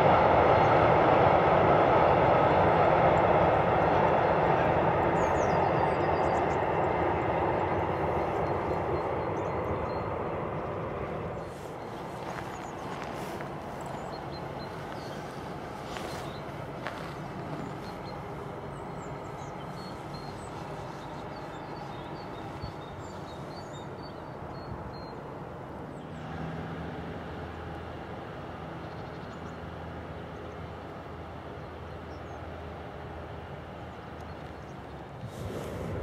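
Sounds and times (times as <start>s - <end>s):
distant train rumble: 0.0s - 36.0s
small birds chirping: 5.1s - 26.3s.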